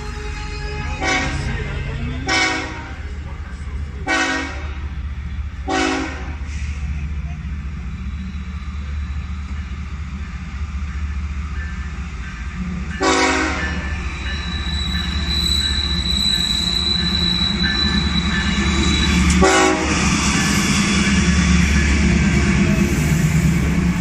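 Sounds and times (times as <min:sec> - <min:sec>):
locomotive horn blasts: 0:00.0 - 0:03.0, 0:04.0 - 0:04.9, 0:05.6 - 0:06.4, 0:13.0 - 0:14.0, 0:19.2 - 0:20.1
diesel locomotive rumbling: 0:00.0 - 0:24.0
thin high squeal: 0:13.8 - 0:19.4.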